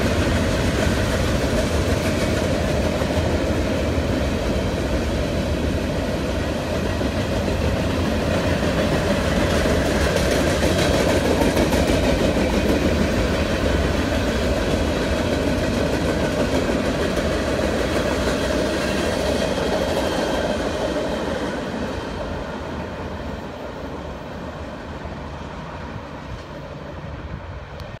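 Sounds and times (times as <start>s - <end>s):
freight train rolling on rails: 0.0s - 28.0s.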